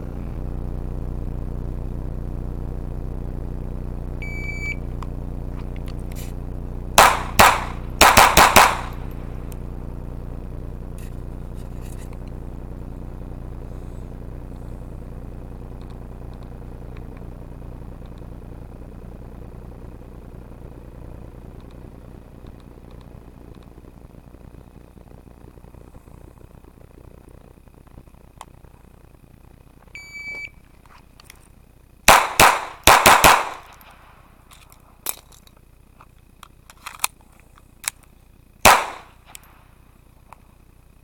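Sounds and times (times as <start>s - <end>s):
steady low hum: 0.0s - 41.0s
shot timer beep: 4.2s - 4.8s
pistol shots: 7.0s - 9.1s, 32.1s - 34.0s, 38.6s - 39.4s.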